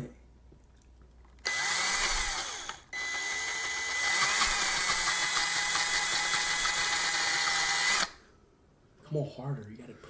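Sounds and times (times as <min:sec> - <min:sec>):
power drill motor whine: 0:01.4 - 0:08.2.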